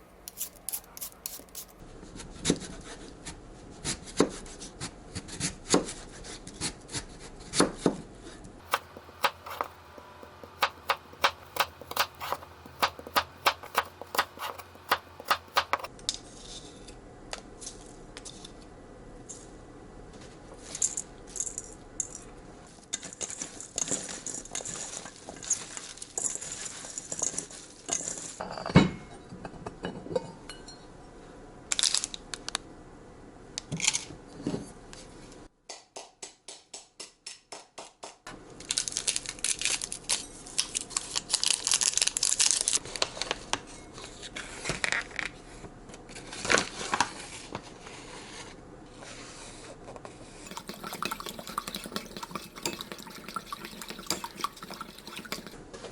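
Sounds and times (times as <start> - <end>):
utensils and dishes clinking: 50.5 - 55.6.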